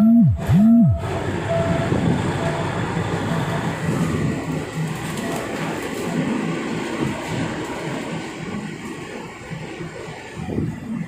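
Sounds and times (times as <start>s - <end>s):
train engine and wheels rumbling: 0.0s - 11.0s.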